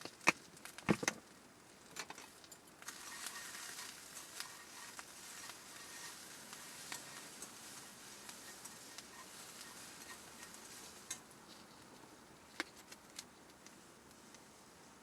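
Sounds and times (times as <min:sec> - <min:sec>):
food sizzling in a pan: 0:02.8 - 0:11.2.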